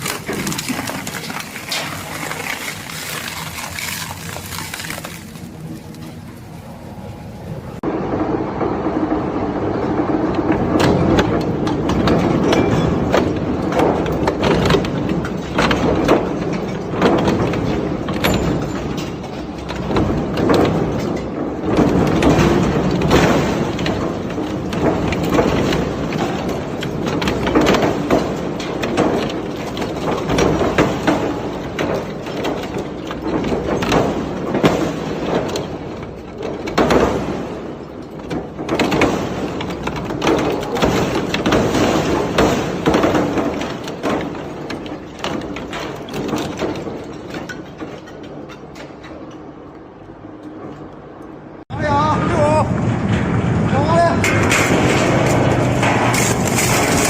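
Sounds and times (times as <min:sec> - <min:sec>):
shredder grinding scrap metal: 0:00.0 - 0:06.2, 0:54.2 - 0:57.0.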